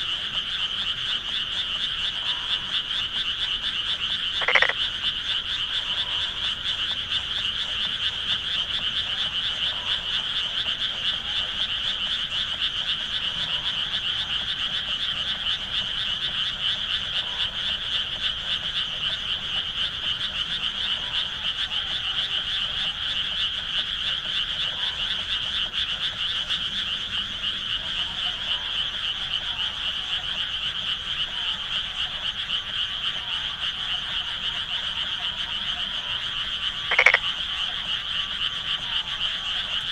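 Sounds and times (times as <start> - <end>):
chorus of frogs croaking: 0.0 - 39.9.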